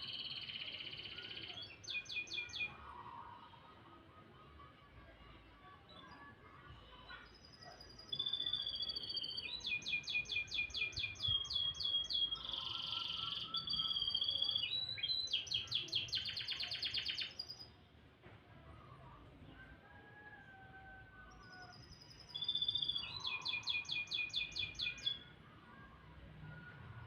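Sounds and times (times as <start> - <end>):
canary singing: 0.0 - 2.8, 7.9 - 17.7, 21.5 - 25.4.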